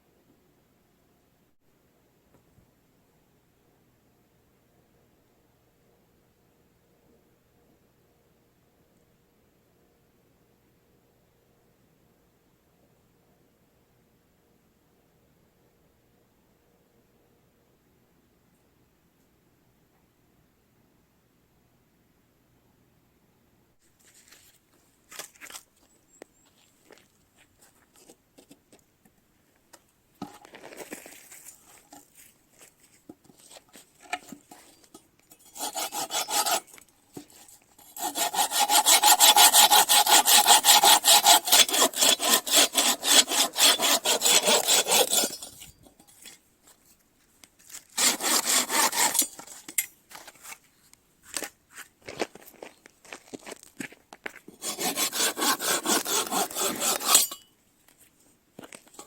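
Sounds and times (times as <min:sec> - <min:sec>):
hand saw cutting wood: 0:35.3 - 0:46.4, 0:48.0 - 0:49.9, 0:54.5 - 0:57.5.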